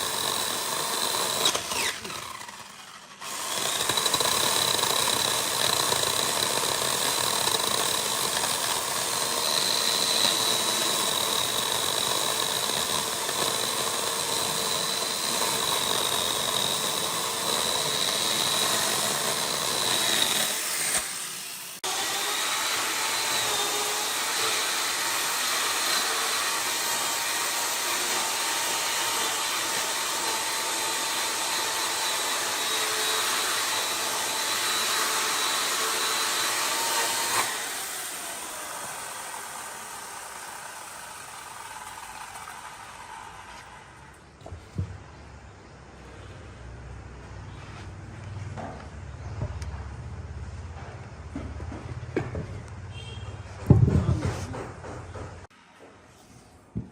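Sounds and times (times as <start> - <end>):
chainsaw running: 0.0 - 44.2.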